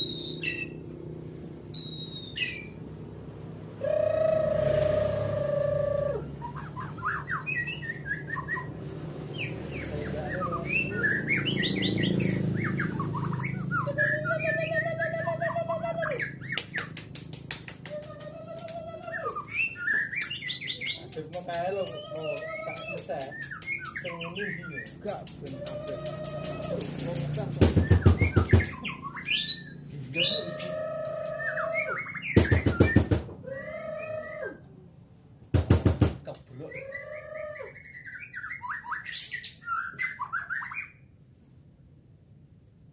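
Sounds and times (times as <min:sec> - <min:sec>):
bird singing chirps and whistles: 0:00.0 - 0:00.8, 0:01.7 - 0:02.8, 0:03.8 - 0:17.0, 0:18.6 - 0:26.8, 0:27.7 - 0:34.6, 0:36.6 - 0:41.1
sharp clicks: 0:20.2 - 0:28.9
sharp loud clicks: 0:24.7 - 0:28.9.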